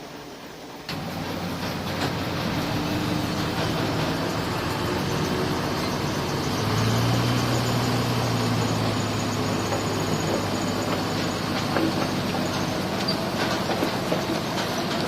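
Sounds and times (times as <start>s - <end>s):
heavy diesel engine under load: 0.0s - 15.0s
mechanical clatter: 7.3s - 15.0s.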